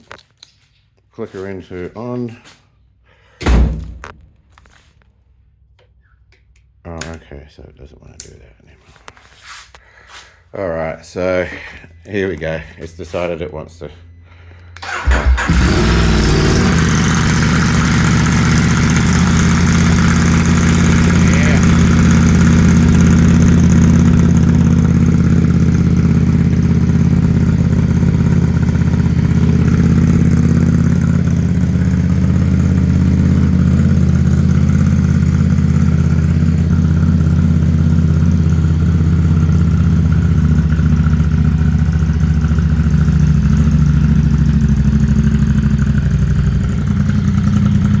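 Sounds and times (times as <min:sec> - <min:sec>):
motorcycle engine idling: 0:14.8 - 0:48.0.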